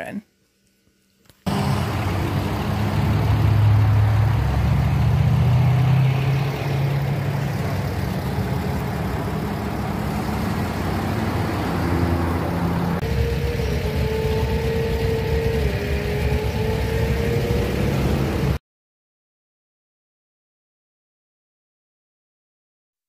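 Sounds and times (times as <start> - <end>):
car engine rumbling: 1.5 - 18.6.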